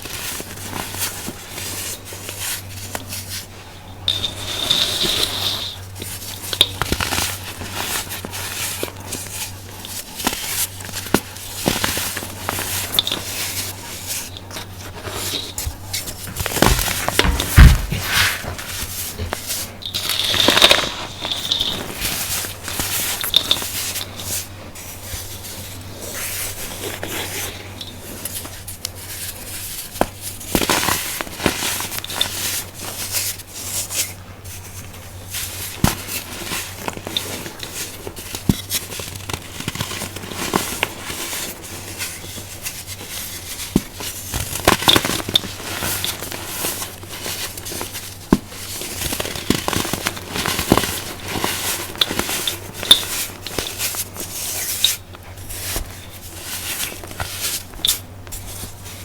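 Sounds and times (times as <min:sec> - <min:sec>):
baking soda crunching: 0:01.7 - 0:29.9.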